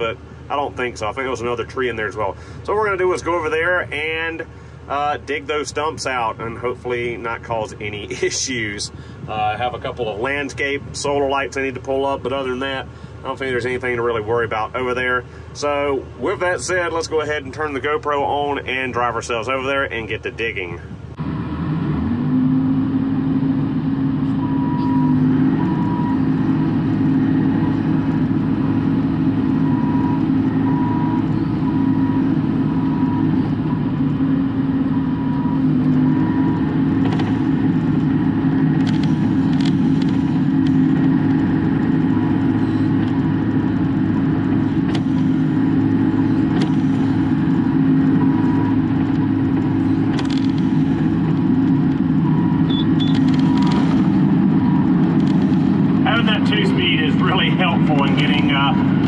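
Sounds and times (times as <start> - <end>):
excavator diesel engine running: 0.0 - 59.0
faint short beep: 24.4 - 26.3, 52.3 - 53.9.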